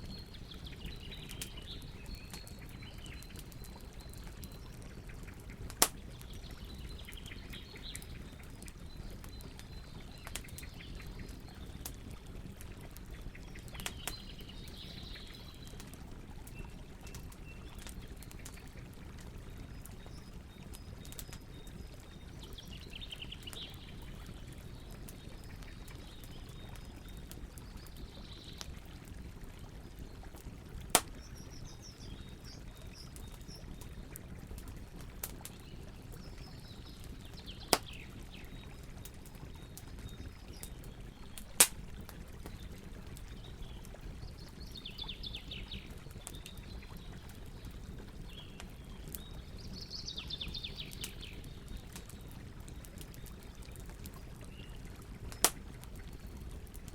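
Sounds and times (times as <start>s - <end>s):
songbirds singing: 0.0s - 56.8s
campfire loud sharp pops: 30.9s - 31.2s, 41.6s - 41.8s, 55.3s - 55.6s.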